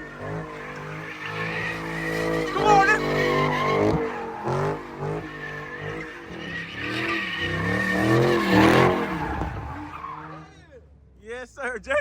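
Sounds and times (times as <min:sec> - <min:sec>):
car engine revving: 0:00.0 - 0:11.2
tyres squealing: 0:00.3 - 0:10.7.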